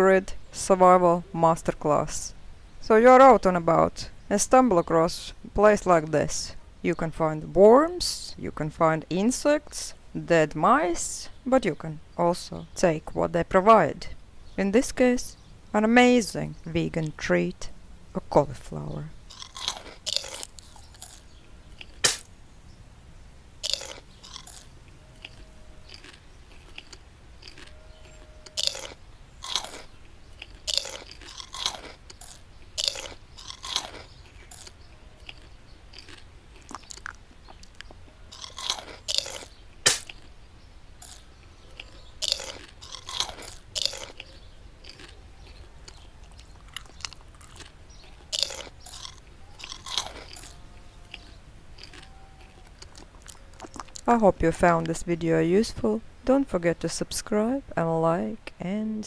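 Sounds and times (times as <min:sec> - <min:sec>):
dog chewing crunchy vegetable: 0:19.3 - 0:21.2, 0:23.6 - 0:37.2, 0:38.3 - 0:40.3, 0:41.0 - 0:54.1.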